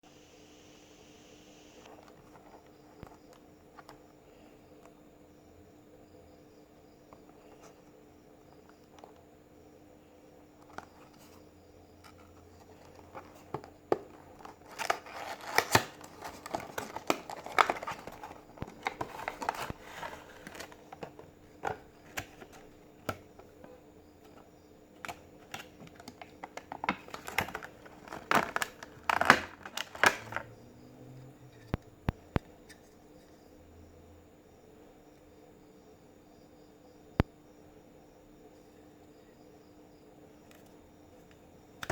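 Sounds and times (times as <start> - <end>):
packaging crinkling and tearing: 12.8 - 23.2, 25.0 - 30.5.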